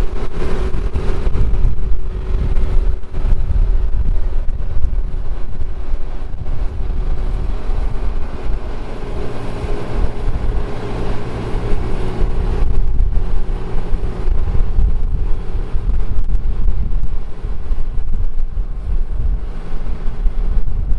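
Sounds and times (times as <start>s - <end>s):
farm machinery engine running: 0.0s - 20.9s
wind buffeting microphone: 0.0s - 20.9s.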